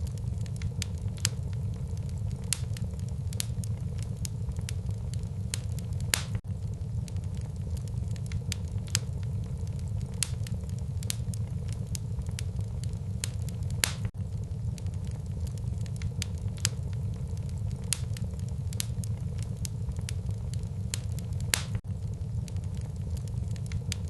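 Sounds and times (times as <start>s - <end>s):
low rumble of flames: 0.0s - 24.0s
wood fire crackling and popping: 0.0s - 24.0s.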